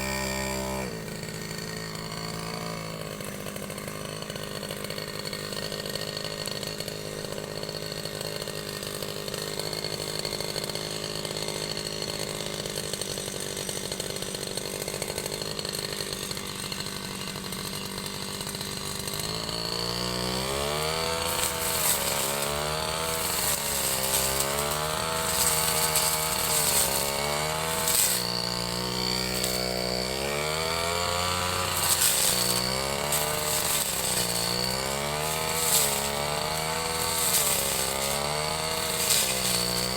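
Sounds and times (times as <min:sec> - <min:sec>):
brush cutter engine revving: 0:00.0 - 0:39.9
cutting line hissing: 0:20.6 - 0:39.9.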